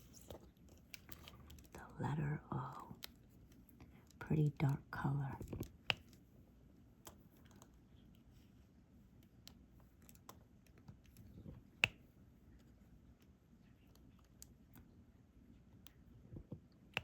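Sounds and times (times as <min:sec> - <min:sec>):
light clicks and taps of pen: 0:00.1 - 0:01.8, 0:02.7 - 0:04.8, 0:05.4 - 0:06.3, 0:07.0 - 0:08.3, 0:09.1 - 0:14.9, 0:15.6 - 0:17.0.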